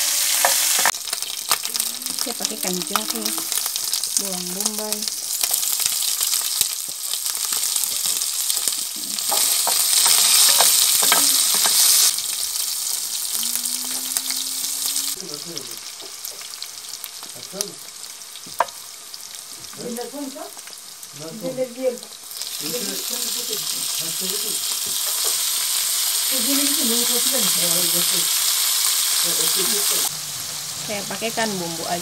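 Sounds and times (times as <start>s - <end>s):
oil crackling spatter: 0.0s - 14.4s, 15.1s - 32.0s
food sizzling in hot oil: 0.0s - 32.0s
wooden spoon stirring: 7.9s - 12.1s.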